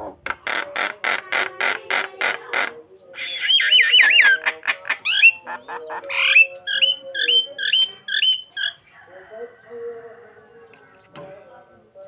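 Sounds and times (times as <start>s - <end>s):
starling singing: 0.0s - 9.2s.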